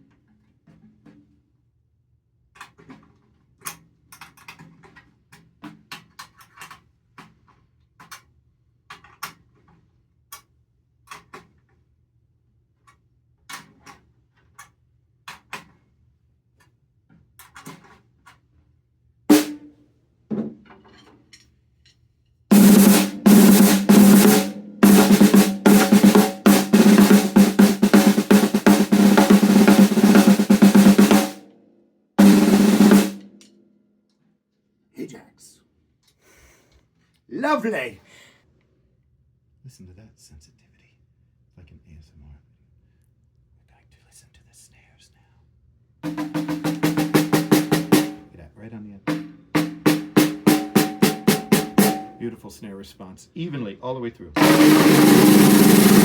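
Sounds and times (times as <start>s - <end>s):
snare drum strokes and rolls: 19.3s - 19.7s, 22.5s - 31.5s, 32.2s - 33.5s, 46.0s - 48.3s, 49.1s - 52.3s, 54.4s - 56.0s.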